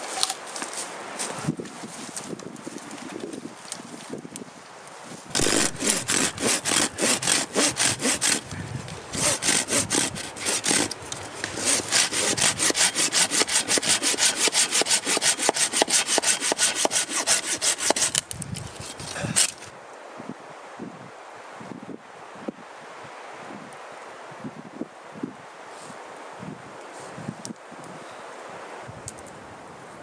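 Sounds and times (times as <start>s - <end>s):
hand saw cutting wood: 5.3s - 19.7s.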